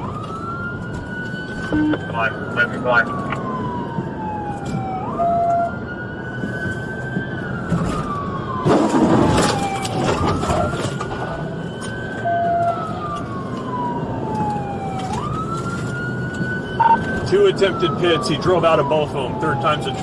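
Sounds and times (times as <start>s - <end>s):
car engine and road noise: 0.0s - 20.0s
police siren wailing: 0.0s - 20.0s
short low steady tone: 1.7s - 2.1s.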